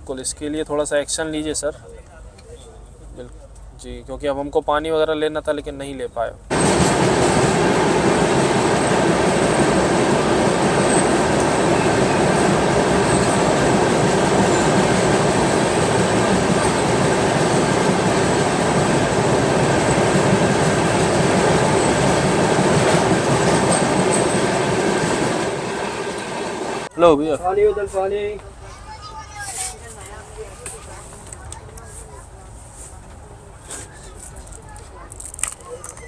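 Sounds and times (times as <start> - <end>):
train wheels rumbling in tunnel: 6.5 - 26.9.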